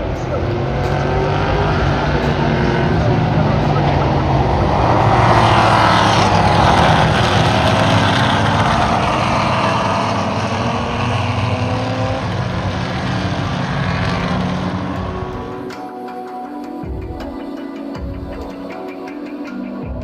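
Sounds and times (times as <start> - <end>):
race car engines passing: 0.0 - 15.8.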